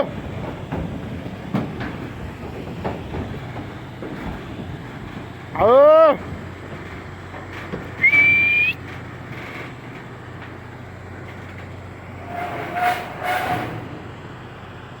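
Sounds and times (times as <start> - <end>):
short high whistle: 8.0 - 8.8.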